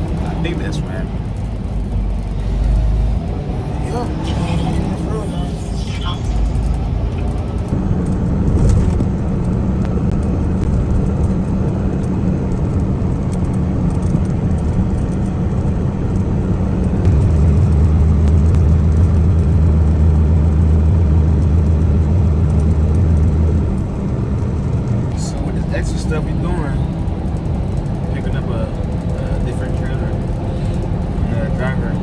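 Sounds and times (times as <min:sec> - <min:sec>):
diesel truck engine droning: 0:00.0 - 0:32.0
road noise: 0:00.0 - 0:32.0.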